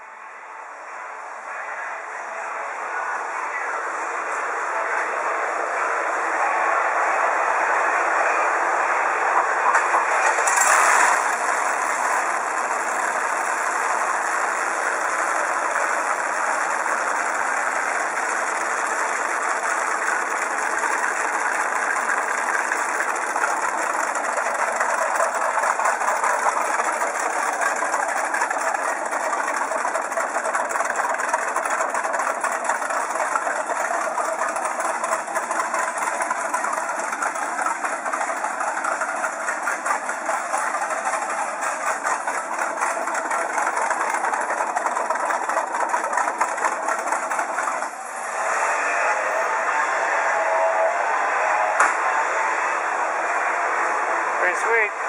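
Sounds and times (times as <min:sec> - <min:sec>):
pickup truck engine idling: 0:06.1 - 0:49.6.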